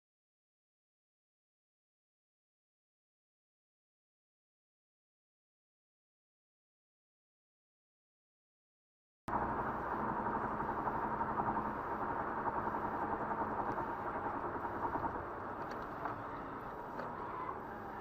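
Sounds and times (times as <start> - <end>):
vehicle engine and road noise: 9.3 - 18.0.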